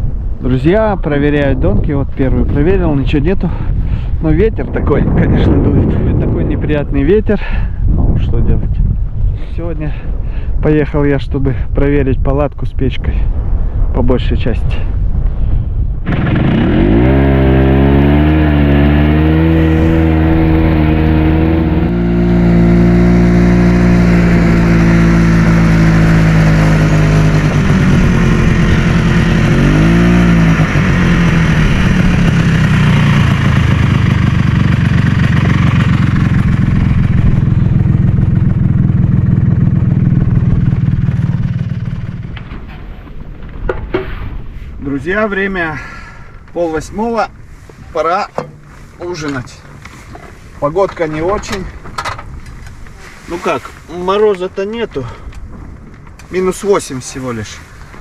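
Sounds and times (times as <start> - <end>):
small vehicle engine: 16.1 - 42.5.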